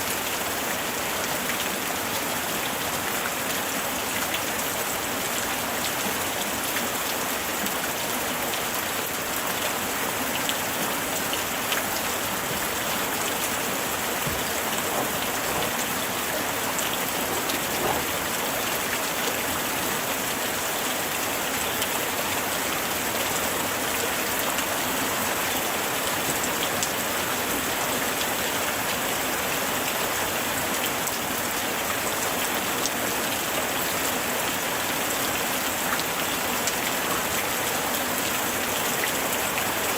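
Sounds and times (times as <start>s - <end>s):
raindrops pattering on surface: 0.0s - 39.9s
light rain hissing: 9.9s - 21.5s.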